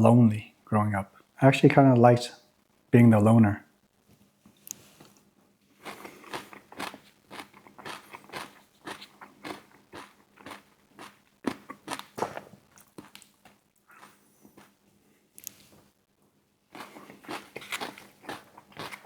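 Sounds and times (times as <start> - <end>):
person chewing crunchy food: 5.7 - 14.8, 16.7 - 19.0.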